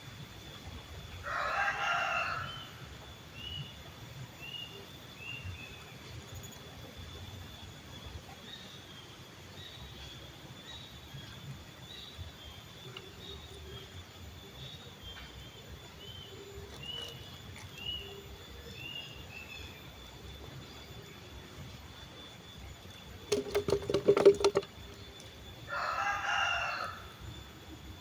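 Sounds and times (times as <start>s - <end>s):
rooster crowing: 1.2s - 2.9s, 25.6s - 27.2s
small birds chirping: 3.4s - 23.3s.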